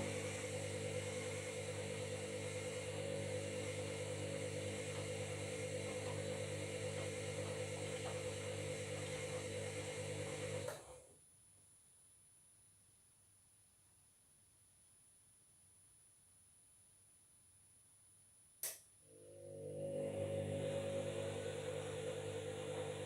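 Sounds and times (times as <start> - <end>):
washing machine drum humming: 0.0 - 10.9, 19.7 - 23.0.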